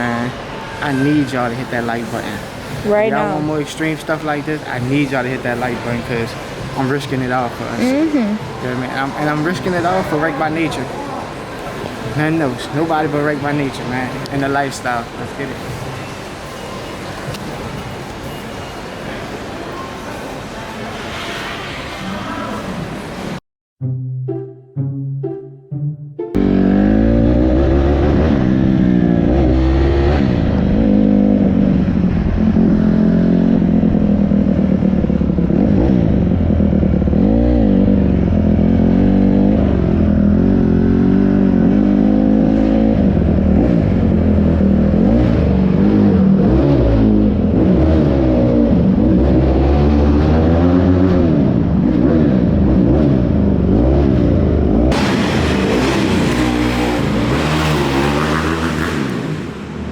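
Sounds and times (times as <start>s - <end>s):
dirt bike engine revving: 26.4s - 31.8s, 35.5s - 59.9s.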